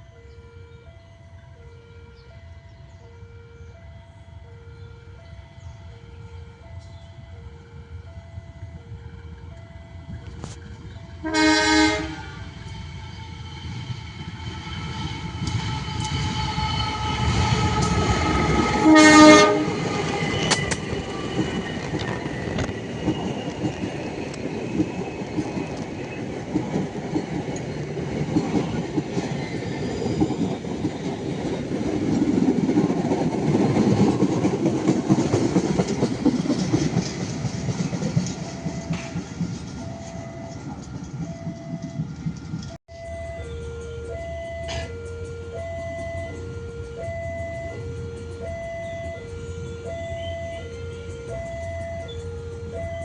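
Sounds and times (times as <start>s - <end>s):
train rumble and wheel clatter: 0.0s - 53.0s
train horn blast: 11.2s - 12.7s, 15.4s - 22.1s, 43.5s - 53.0s.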